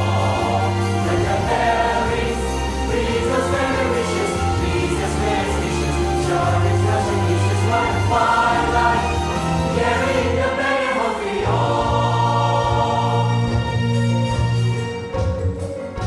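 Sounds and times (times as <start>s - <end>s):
choir singing held chords: 0.0s - 14.1s
instrumental accompaniment: 0.0s - 16.0s.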